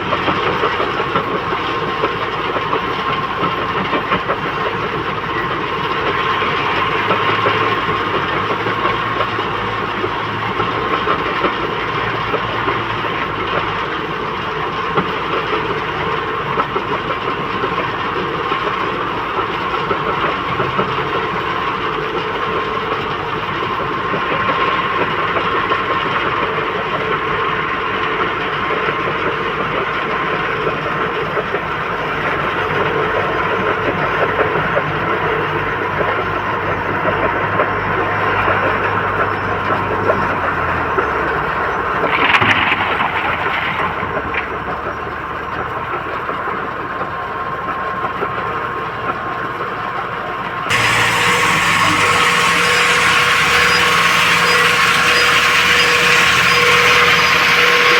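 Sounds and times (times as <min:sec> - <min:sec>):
diesel machinery engine whining: 0:31.9 - 0:46.4, 0:50.4 - 0:57.9.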